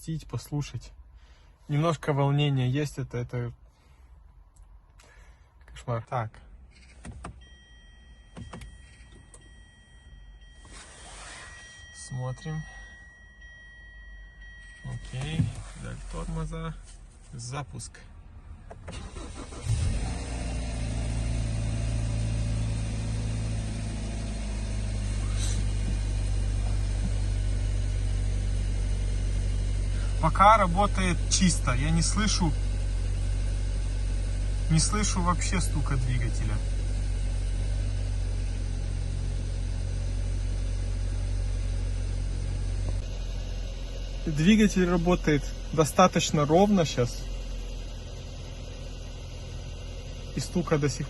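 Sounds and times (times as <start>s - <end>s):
car engine starting and idling: 0.0s - 51.0s.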